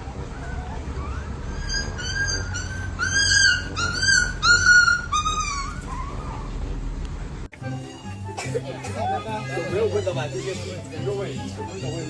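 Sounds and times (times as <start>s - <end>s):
dog whining: 0.4s - 6.8s, 9.0s - 12.0s.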